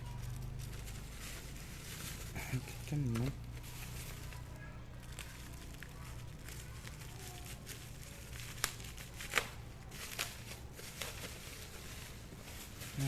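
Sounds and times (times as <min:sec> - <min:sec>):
packaging crinkling: 0:00.0 - 0:13.0
sharp crackles: 0:00.0 - 0:13.0.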